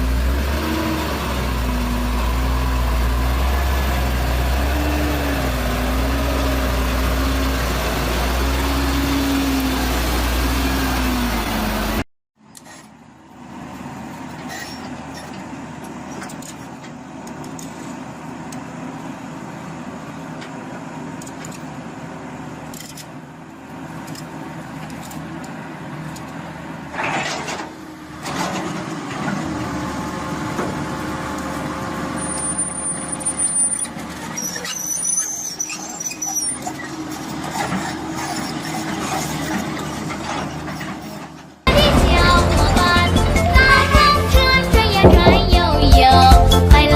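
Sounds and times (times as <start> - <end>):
road vehicle rumble: 0.0 - 46.9
high-pitched squeals: 32.1 - 46.6.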